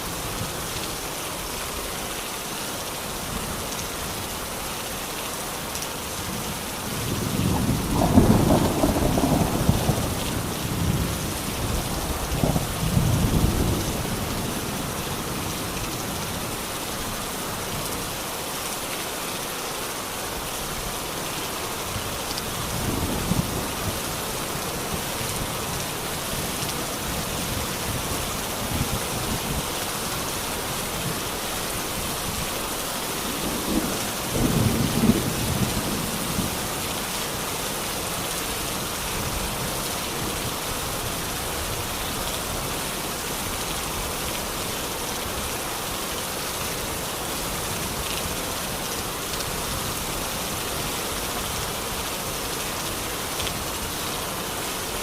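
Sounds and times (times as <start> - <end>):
steady rain falling: 0.0 - 55.0
low rumble of thunder: 6.9 - 15.6, 33.3 - 36.8.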